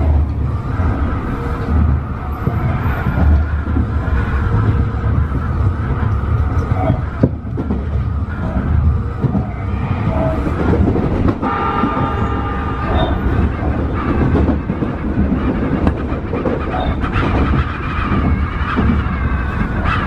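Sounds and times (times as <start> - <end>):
track knocks: 0.0 - 20.0
train wheels rumbling on rail: 0.0 - 20.0
multi-tone whine: 4.8 - 15.2.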